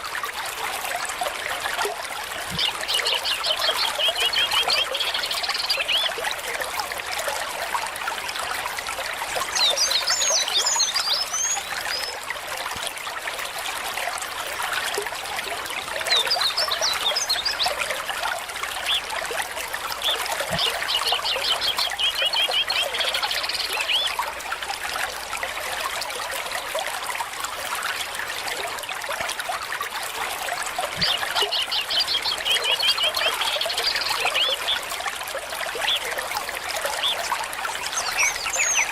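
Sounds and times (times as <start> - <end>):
stream trickling over stones: 0.0 - 38.9
songbirds chirping: 2.4 - 6.2, 20.0 - 24.2, 30.9 - 38.9
bird trill: 37.0 - 38.9.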